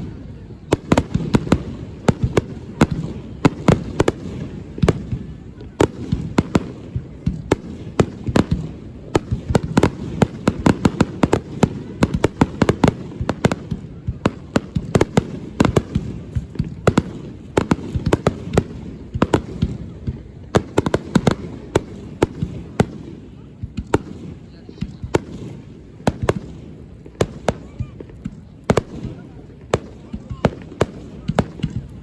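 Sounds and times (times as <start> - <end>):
firework bangs and crackles: 0.0 - 32.0.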